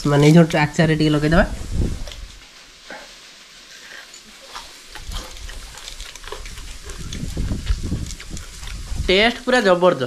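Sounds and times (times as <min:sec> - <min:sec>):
chewing fried food: 0:02.0 - 0:09.8.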